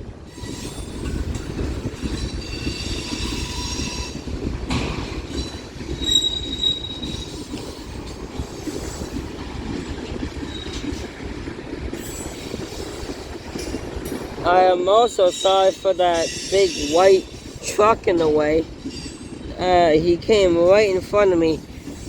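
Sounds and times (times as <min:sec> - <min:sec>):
train wheels rumbling on rail: 0:00.0 - 0:22.0
wheel squeals: 0:00.3 - 0:09.2, 0:10.4 - 0:11.1, 0:11.9 - 0:13.8, 0:18.8 - 0:19.5.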